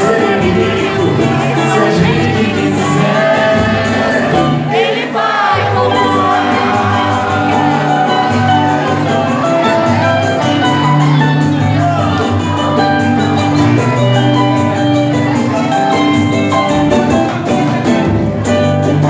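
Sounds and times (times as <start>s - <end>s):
bass: 0.0s - 4.7s, 5.6s - 19.0s
person singing: 0.0s - 14.5s
small guitar strumming: 0.0s - 19.0s.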